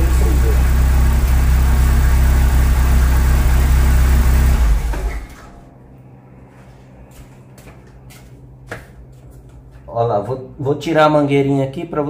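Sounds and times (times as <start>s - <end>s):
car engine idling: 0.0s - 5.7s.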